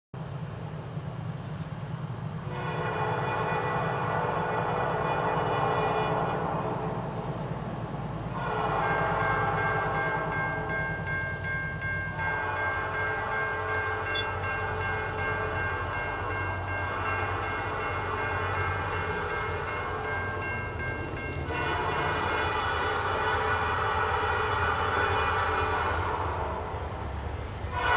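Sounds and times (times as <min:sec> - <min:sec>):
diesel engines rumbling: 0:00.4 - 0:27.9
train air horn blasts: 0:02.5 - 0:06.9, 0:08.3 - 0:10.3, 0:12.2 - 0:15.5, 0:21.5 - 0:26.8, 0:27.7 - 0:27.9.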